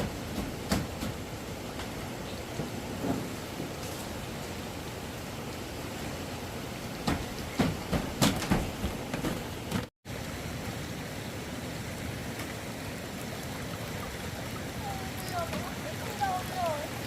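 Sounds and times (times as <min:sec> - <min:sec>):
sharp knocks and thuds: 0:00.0 - 0:04.1, 0:07.0 - 0:09.9
steady water noise: 0:00.0 - 0:17.0.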